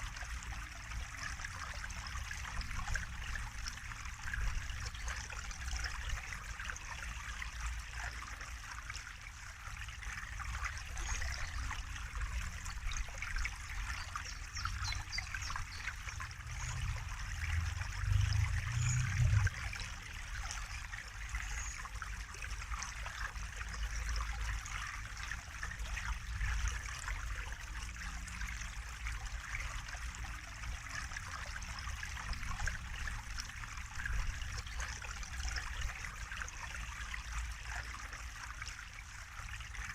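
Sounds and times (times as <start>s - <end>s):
water trickling: 0.0s - 39.9s
low rumble: 16.2s - 19.8s.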